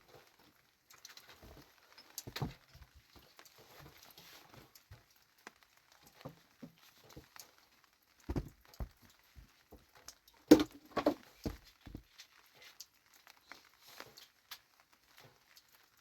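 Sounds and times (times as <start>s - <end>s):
knocks and thumps: 8.3s - 9.5s, 10.5s - 12.1s.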